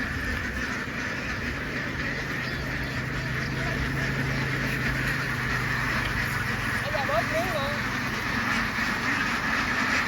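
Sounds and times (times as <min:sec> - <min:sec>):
flock of ducks quacking: 0:00.0 - 0:10.0.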